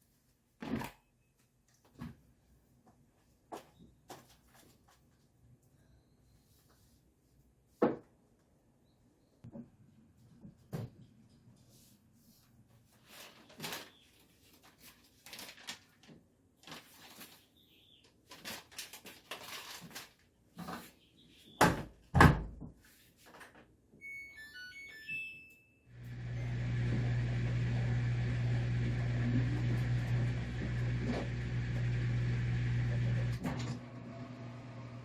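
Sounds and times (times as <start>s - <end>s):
keypad beeps: 24.0s - 25.8s
microwave oven humming: 25.9s - 35.0s.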